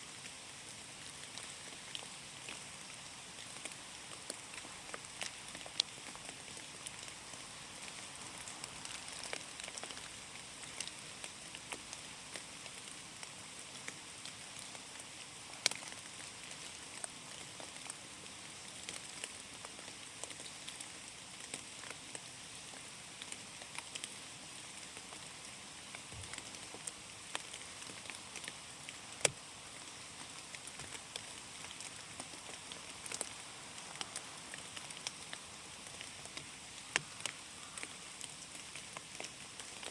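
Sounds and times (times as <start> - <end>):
rain hiss: 0.0 - 39.9
raindrops tapping on leaves: 0.1 - 39.9.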